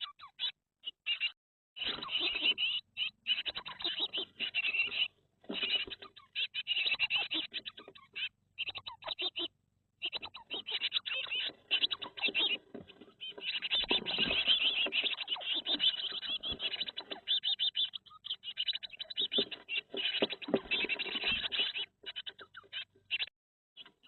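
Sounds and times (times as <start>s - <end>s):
nestlings chirping: 1.8s - 24.0s
knocks and rustles in nest box: 11.5s - 17.2s, 19.2s - 21.6s.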